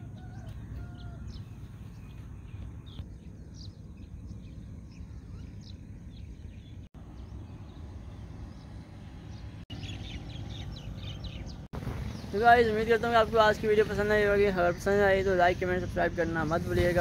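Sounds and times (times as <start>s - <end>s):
bird chirps: 0.0s - 13.1s.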